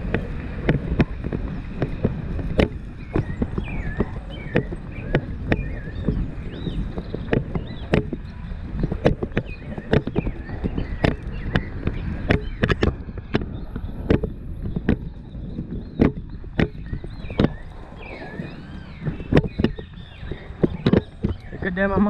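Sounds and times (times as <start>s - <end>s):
horse hooves striking ground: 0.0s - 22.0s
steady low rumble: 0.0s - 22.0s.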